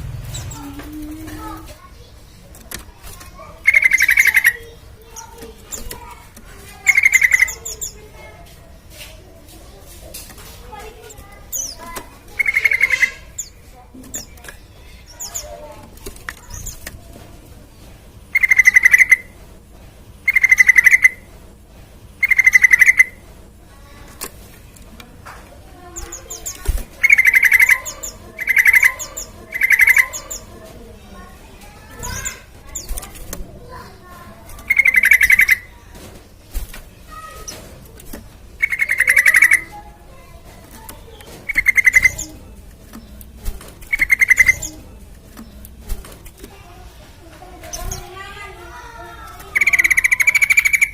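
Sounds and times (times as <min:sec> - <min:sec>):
faint bird chirps and clicks: 0:01.9 - 0:06.2, 0:10.2 - 0:17.0, 0:24.1 - 0:30.5, 0:36.6 - 0:46.6, 0:49.2 - 0:50.9
faint bird chirps: 0:03.4 - 0:06.2, 0:18.3 - 0:19.4, 0:20.3 - 0:21.3, 0:26.0 - 0:30.6, 0:34.6 - 0:35.8, 0:38.6 - 0:42.4, 0:43.8 - 0:45.6.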